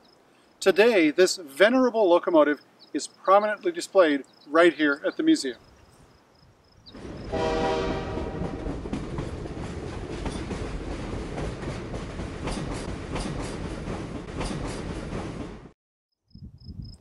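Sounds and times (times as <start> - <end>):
train rumbling on rails: 6.9 - 15.8
wheels clicking over rail joints: 8.6 - 15.5.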